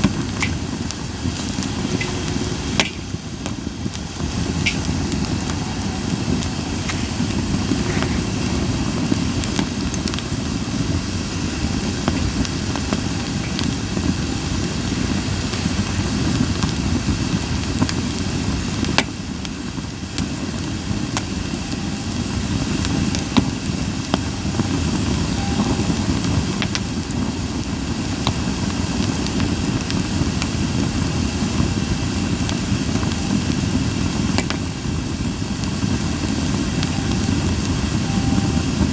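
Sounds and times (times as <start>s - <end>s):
low rumble: 0.0s - 17.7s
campfire crackling and popping: 0.0s - 38.9s.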